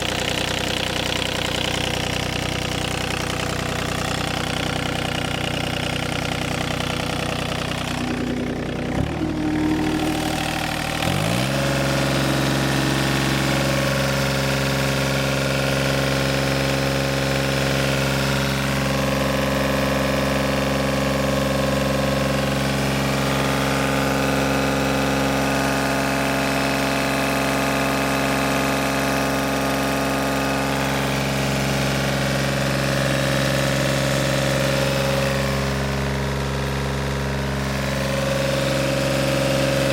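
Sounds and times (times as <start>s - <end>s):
diesel mower engine running: 0.0s - 39.9s.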